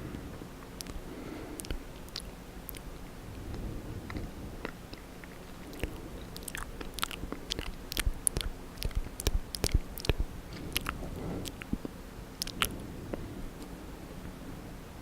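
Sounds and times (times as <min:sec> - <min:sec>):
wet lip and tongue clicks: 0:00.6 - 0:01.0, 0:01.6 - 0:02.9, 0:04.1 - 0:13.7.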